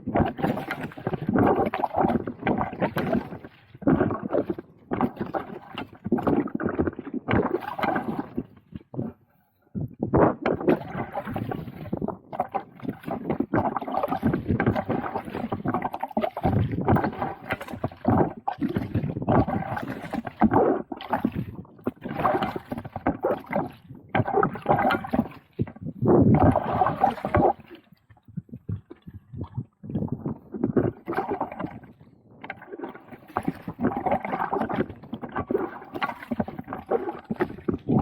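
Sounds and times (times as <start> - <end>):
water splashing around kayak: 0.0 - 38.0.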